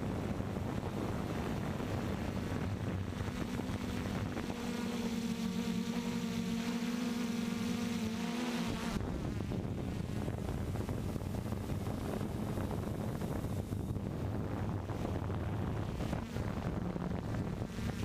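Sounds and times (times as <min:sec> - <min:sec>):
wind buffeting microphone: 0:00.0 - 0:04.8, 0:09.0 - 0:18.0
drone motors humming: 0:00.0 - 0:18.0.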